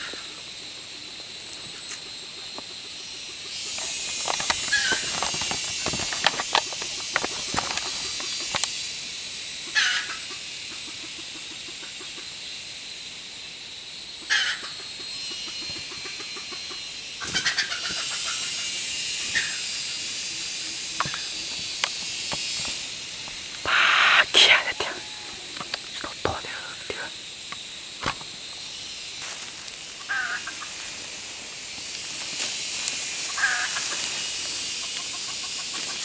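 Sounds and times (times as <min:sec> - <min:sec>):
high-pitched insect hiss: 0:00.0 - 0:36.0
chicken-like clucking calls: 0:15.5 - 0:18.7, 0:34.7 - 0:36.0.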